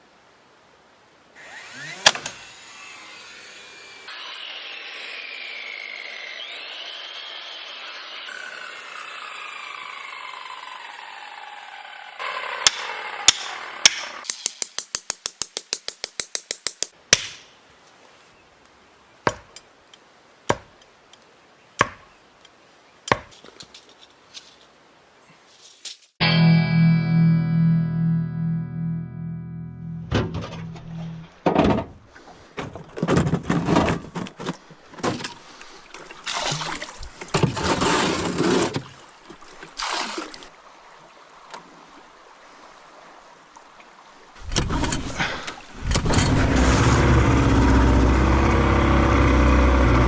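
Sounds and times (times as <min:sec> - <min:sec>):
power tool whine: 0:01.4 - 0:13.3, 0:46.1 - 0:50.0.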